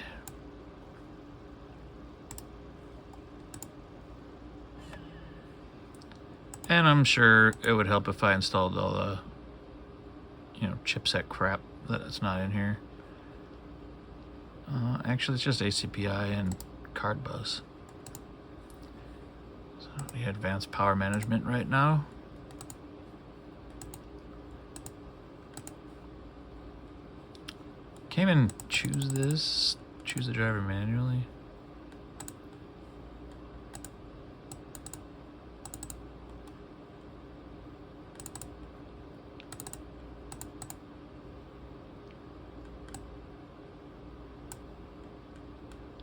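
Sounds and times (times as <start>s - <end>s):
steady low hum: 0.0s - 46.0s
laptop keys clicking: 22.5s - 22.8s, 33.7s - 35.0s, 35.6s - 36.0s, 38.2s - 38.5s, 39.4s - 40.8s.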